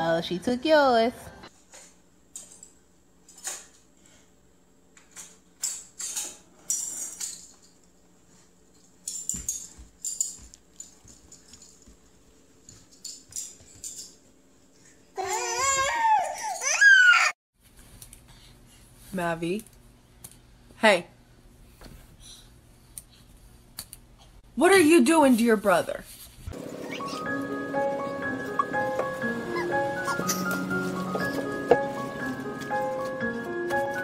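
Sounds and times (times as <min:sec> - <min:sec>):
toddler crying out: 0:15.2 - 0:17.4, 0:29.5 - 0:31.5
toddlers giggling: 0:29.4 - 0:31.5.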